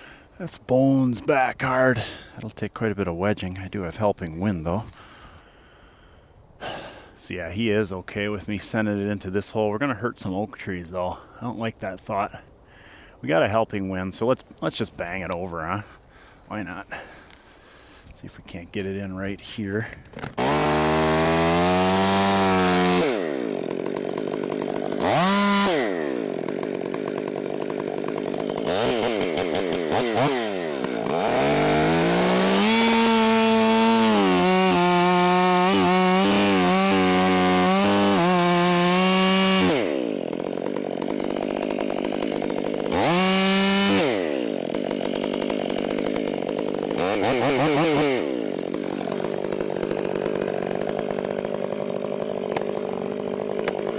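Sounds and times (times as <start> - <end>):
chainsaw revving: 20.1 - 53.9.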